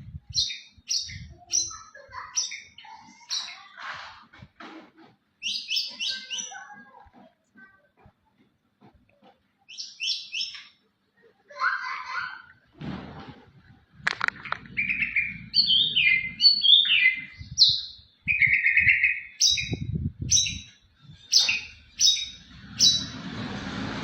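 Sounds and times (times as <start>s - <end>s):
songbird singing whistled phrases: 5.4s - 6.6s, 9.7s - 10.8s, 14.8s - 20.7s, 21.3s - 23.2s.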